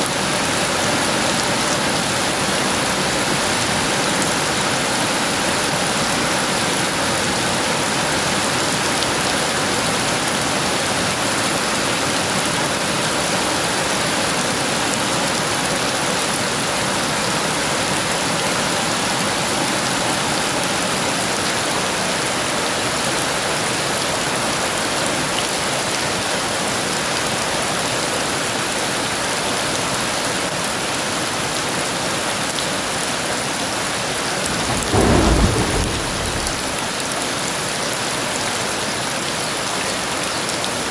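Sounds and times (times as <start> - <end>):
heavy rain falling: 34.4 - 37.1
low rumble of thunder: 34.4 - 37.2.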